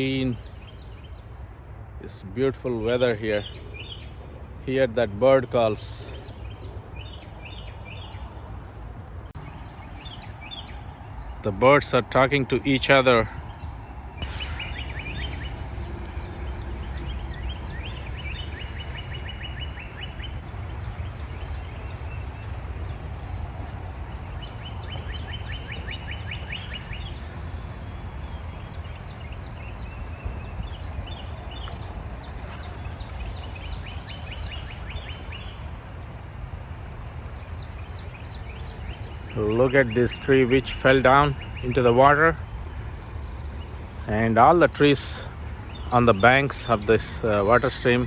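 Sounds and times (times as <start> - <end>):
low background rush: 14.2 - 48.0
songbirds trilling: 14.2 - 48.0.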